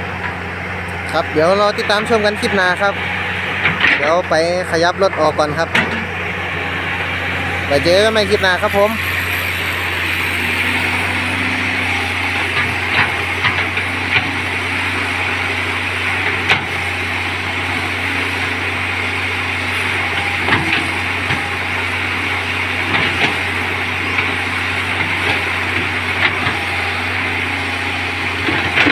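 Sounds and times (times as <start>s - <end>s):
excavator diesel engine running: 0.0s - 28.9s
sharp knocks and clanks: 5.1s - 6.1s.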